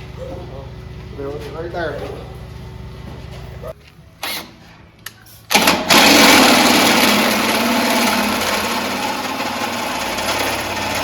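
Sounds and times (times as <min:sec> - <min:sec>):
power tool motor running: 0:05.5 - 0:11.0.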